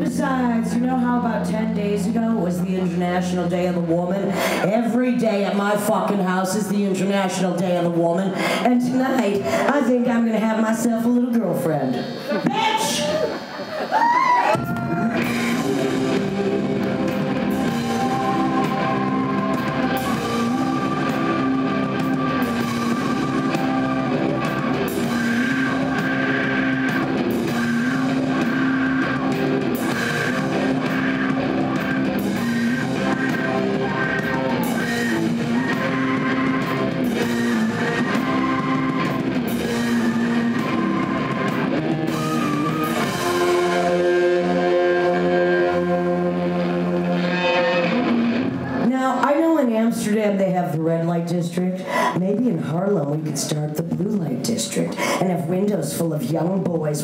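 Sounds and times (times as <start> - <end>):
electric guitar riff: 11.9 - 49.3
drum kit: 12.0 - 48.8.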